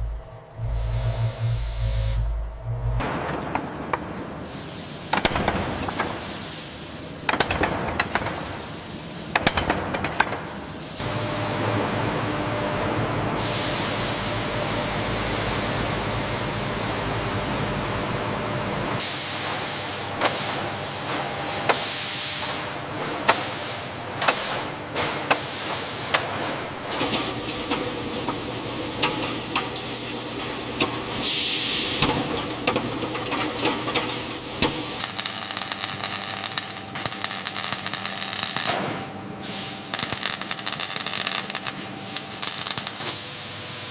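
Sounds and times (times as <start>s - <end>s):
steady machine hiss: 4.4s - 7.4s, 27.8s - 32.3s, 34.2s - 43.9s.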